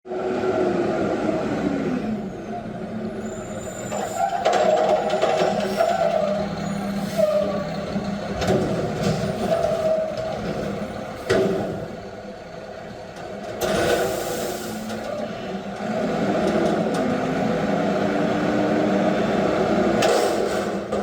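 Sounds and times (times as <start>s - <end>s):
garbage truck running: 0.1s - 21.0s
air brake hisses: 13.9s - 14.9s.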